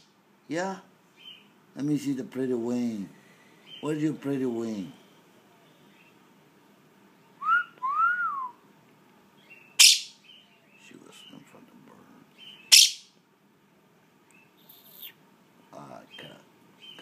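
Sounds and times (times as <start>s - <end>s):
parrot chattering: 9.8s - 10.2s, 12.4s - 13.1s
parrot whistling: 9.8s - 10.2s, 12.6s - 13.1s
parrot squawking: 9.8s - 10.4s, 12.4s - 13.1s.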